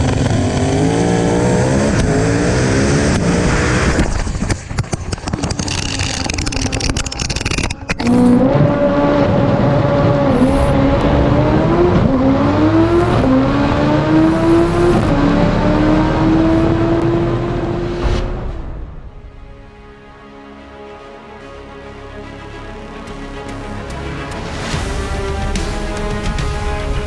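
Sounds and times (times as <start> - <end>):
racing car engines revving: 0.0 - 18.8.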